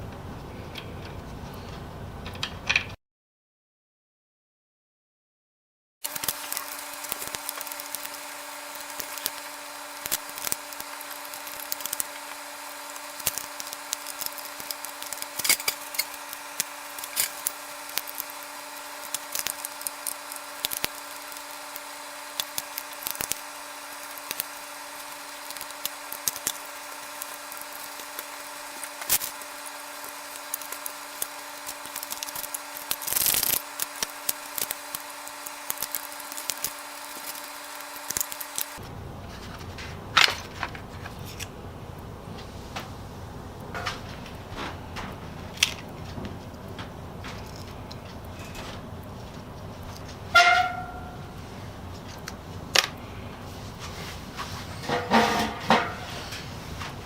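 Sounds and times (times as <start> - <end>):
electrical hum: 6.0 - 57.0
tools and wood clicking: 8.8 - 18.4.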